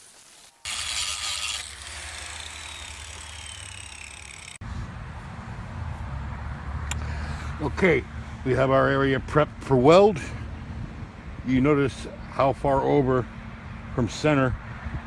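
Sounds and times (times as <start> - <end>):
grinder grinding rusty steel: 0.0 - 4.6
grinder disc whining down: 0.6 - 4.6.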